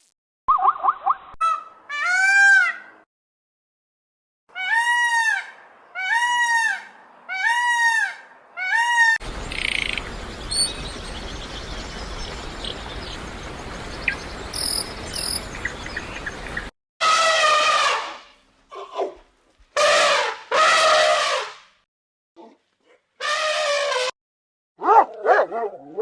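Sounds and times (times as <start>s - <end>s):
low outdoor rumble: 9.2s - 16.7s.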